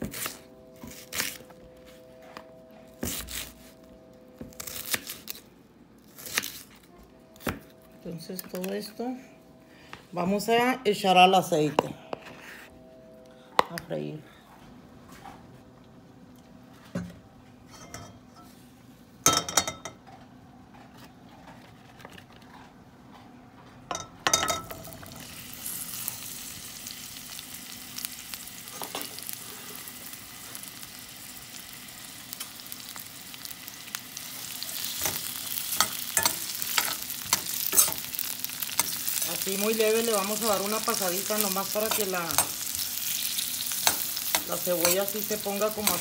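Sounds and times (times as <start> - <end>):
food sizzling in oil: 24.7 - 46.0.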